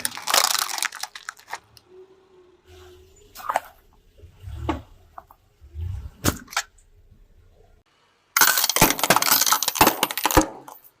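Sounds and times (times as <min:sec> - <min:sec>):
object crunching and cracking: 0:00.0 - 0:01.8.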